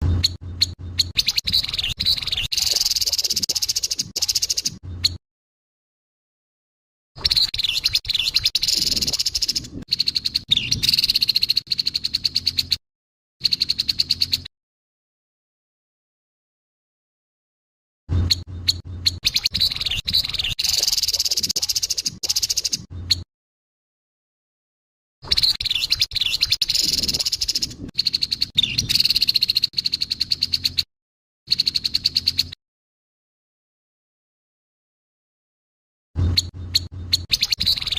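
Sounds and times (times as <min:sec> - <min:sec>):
bird harsh rattling call: 0:00.2 - 0:04.8, 0:07.2 - 0:12.8, 0:19.2 - 0:22.9, 0:25.3 - 0:30.8, 0:36.4 - 0:37.9.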